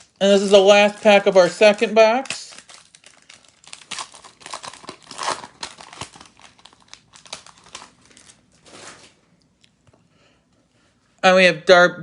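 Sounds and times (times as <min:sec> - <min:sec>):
wrapper crinkling and tearing: 0:00.0 - 0:09.3.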